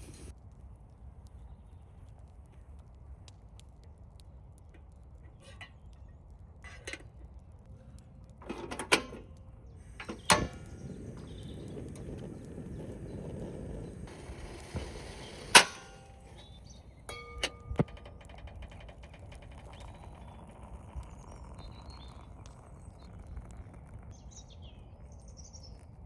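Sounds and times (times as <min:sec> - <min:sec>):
steady hiss: 0:00.0 - 0:00.3, 0:08.6 - 0:17.1
small clicks of cooking gear: 0:00.0 - 0:24.4
low steady rumble: 0:03.9 - 0:26.0.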